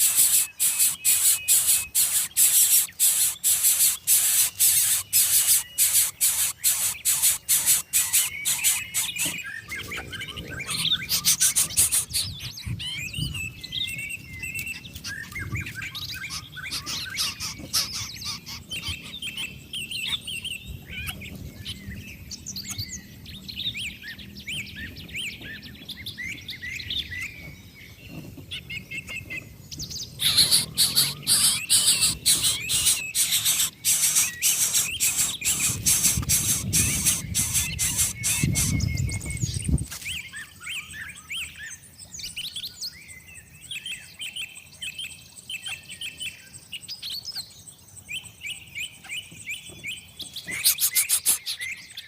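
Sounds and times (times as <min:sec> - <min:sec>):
nestlings rasping hiss: 0:00.0 - 0:09.4, 0:30.2 - 0:38.8, 0:50.6 - 0:51.6
high chirping calls: 0:00.0 - 0:52.0.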